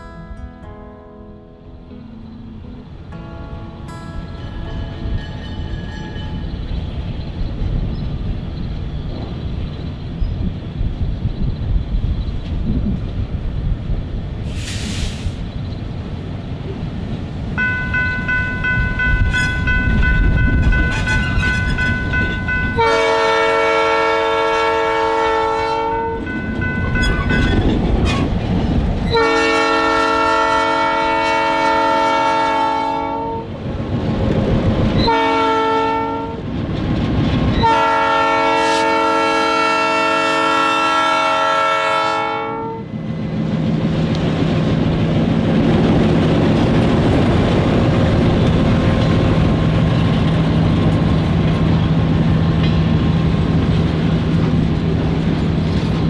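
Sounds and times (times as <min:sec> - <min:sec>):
rumble of rolling train: 0:00.0 - 0:56.0
locomotive air horn blasts: 0:17.6 - 0:27.7, 0:29.1 - 0:33.5, 0:35.0 - 0:36.4, 0:37.6 - 0:42.9.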